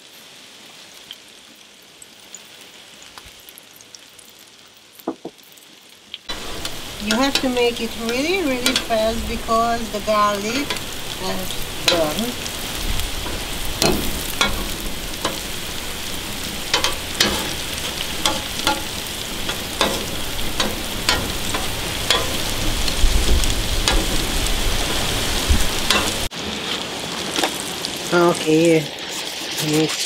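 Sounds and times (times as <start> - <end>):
garlic sizzling in oil: 0.0 - 30.0
metal tongs clicking and scraping: 6.3 - 9.1, 10.6 - 23.0, 23.8 - 24.2, 25.9 - 26.2.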